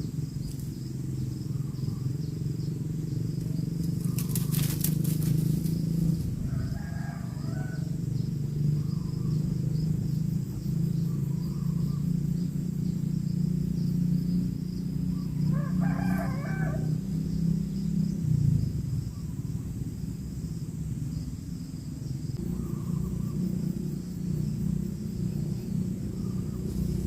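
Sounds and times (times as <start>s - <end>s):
bird calling: 0.0s - 12.6s, 22.4s - 24.5s, 25.1s - 27.0s
high insect buzz: 0.0s - 27.0s
low hum: 16.6s - 27.0s.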